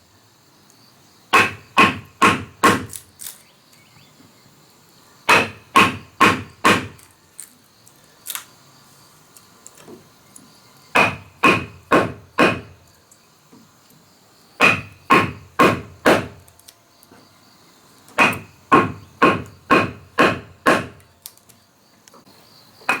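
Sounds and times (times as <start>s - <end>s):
hand tool striking wood: 1.4s - 3.0s, 5.3s - 7.1s, 11.0s - 12.8s, 14.6s - 16.5s, 18.1s - 21.0s.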